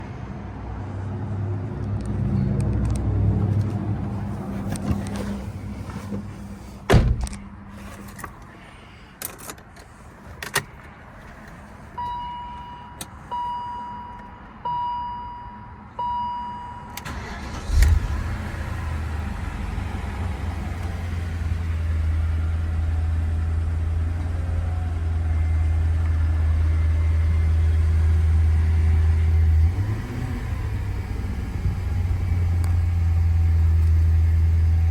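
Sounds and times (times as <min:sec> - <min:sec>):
car engine cranking and starting: 0:02.7 - 0:08.6, 0:17.0 - 0:34.9
heavy thump: 0:04.8 - 0:07.4
deep engine idle: 0:17.7 - 0:34.9.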